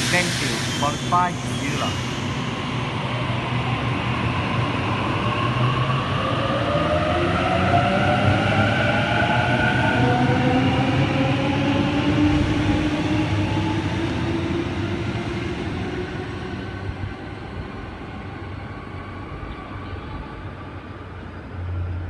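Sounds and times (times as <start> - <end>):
electric train traction whine: 0.0 - 14.8.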